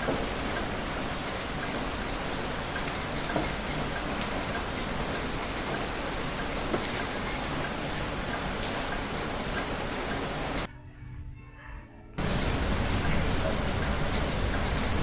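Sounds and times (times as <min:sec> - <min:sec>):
drops ticking on a surface: 0:00.0 - 0:10.7
heavy rain falling: 0:00.0 - 0:10.7, 0:12.2 - 0:15.0.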